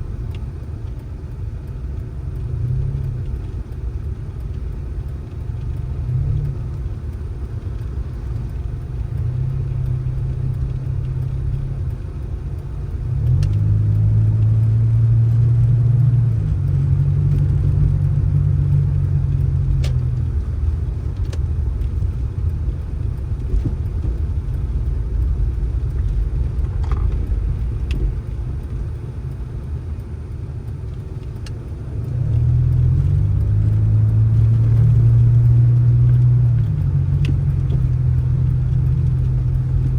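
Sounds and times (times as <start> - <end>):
faint clicks: 0.0 - 39.9
vehicle engine revving: 2.4 - 39.9.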